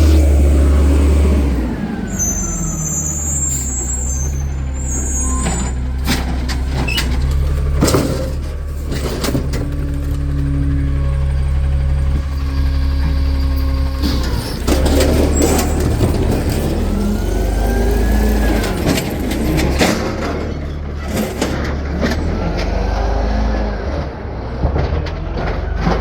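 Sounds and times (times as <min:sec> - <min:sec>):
truck engine running low: 0:00.0 - 0:26.0
air-brake squeal: 0:01.7 - 0:07.3, 0:12.4 - 0:22.3.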